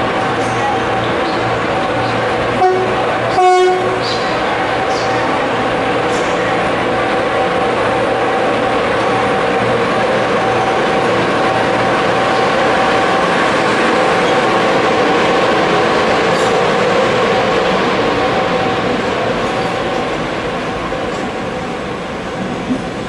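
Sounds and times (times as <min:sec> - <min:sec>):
train wheels on rail: 0:00.0 - 0:23.0
locomotive humming tone: 0:00.1 - 0:23.0.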